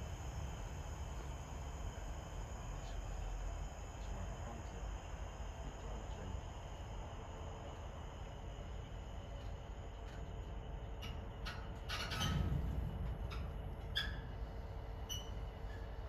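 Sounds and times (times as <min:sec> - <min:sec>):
freight train rumbling: 0:00.0 - 0:06.4, 0:08.6 - 0:16.0
train clunk: 0:10.0 - 0:16.0.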